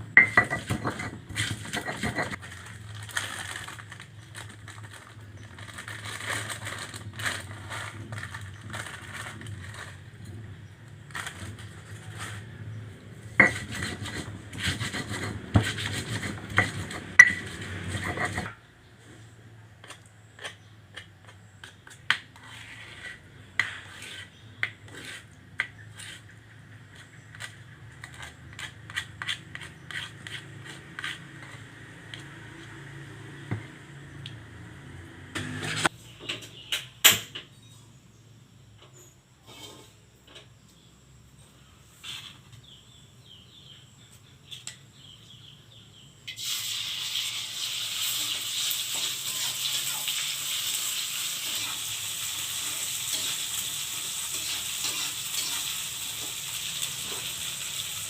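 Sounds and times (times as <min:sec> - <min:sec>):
utensils scraping cookware: 0:00.1 - 0:02.4, 0:13.4 - 0:18.6, 0:35.4 - 0:35.9, 0:51.4 - 0:57.4.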